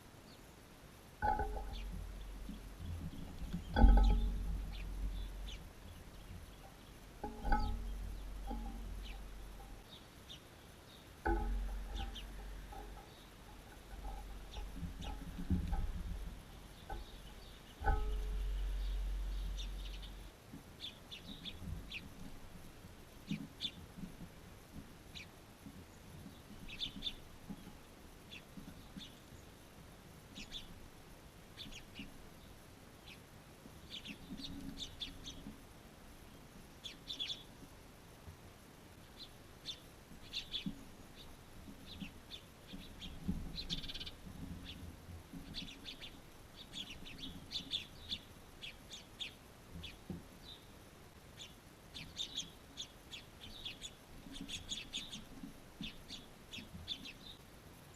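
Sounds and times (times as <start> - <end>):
pet birds chirping: 1.2 - 22.1, 39.2 - 44.8, 45.4 - 50.7, 51.4 - 57.4
soft low bird calls: 1.2 - 22.5, 39.1 - 50.7
low rumble: 11.6 - 20.3.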